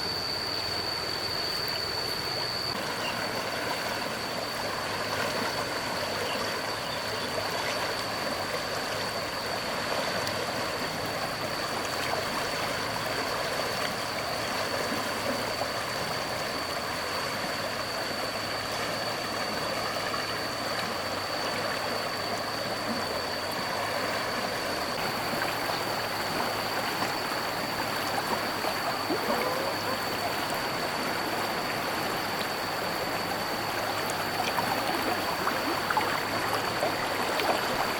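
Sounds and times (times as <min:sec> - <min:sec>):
high-pitched whine: 0:00.0 - 0:37.9
floodwater rushing: 0:17.8 - 0:37.9.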